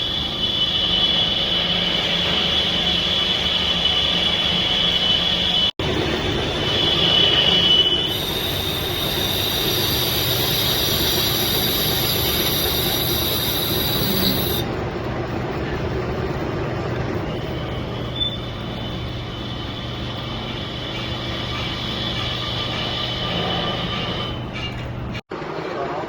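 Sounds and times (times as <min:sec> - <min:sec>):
metal lathe running: 0:00.0 - 0:24.6
cutting tool squealing: 0:06.3 - 0:14.6, 0:17.3 - 0:24.9.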